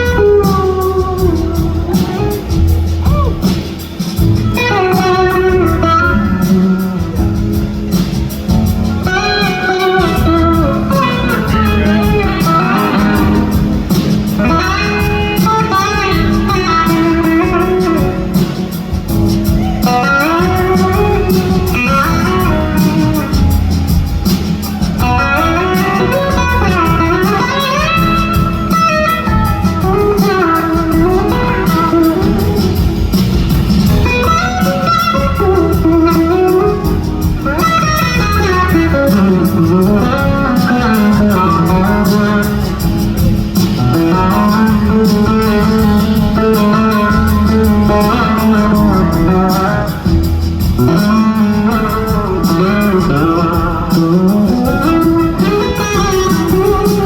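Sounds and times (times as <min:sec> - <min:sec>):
live band playing: 0:00.0 - 0:57.0
electric slide guitar solo: 0:09.1 - 0:32.6, 0:34.0 - 0:43.0, 0:43.7 - 0:50.1, 0:50.8 - 0:57.0.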